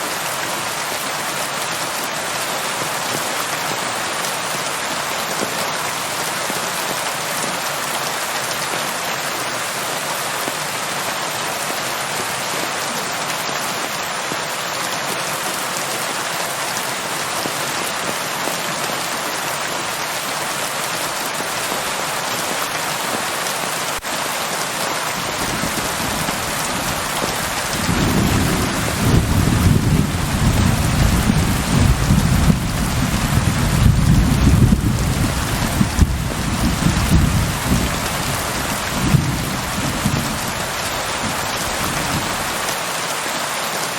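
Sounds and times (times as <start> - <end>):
rain pattering: 0.0 - 43.9
low rumble of thunder: 27.5 - 40.4.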